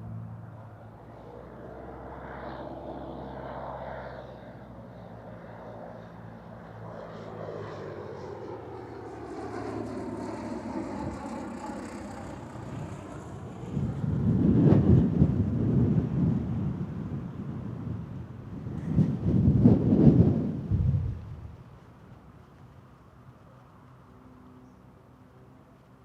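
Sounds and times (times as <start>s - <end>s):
propeller airplane engine drone: 0.0s - 26.0s.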